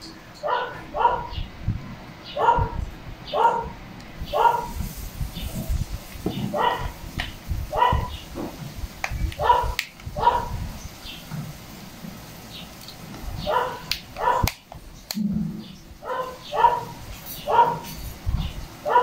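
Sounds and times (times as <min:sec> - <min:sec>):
dog barking: 0:00.4 - 0:01.5, 0:02.3 - 0:04.7, 0:06.5 - 0:07.0, 0:07.7 - 0:08.2, 0:09.4 - 0:10.6, 0:13.4 - 0:14.5, 0:16.0 - 0:17.9.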